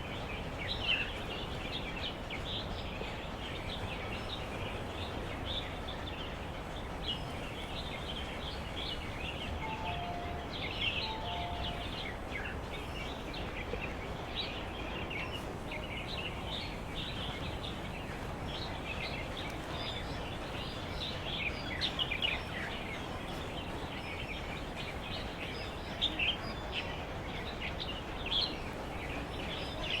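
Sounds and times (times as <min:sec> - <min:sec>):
background hiss: 0:06.8 - 0:29.9
small birds chirping: 0:08.0 - 0:13.5.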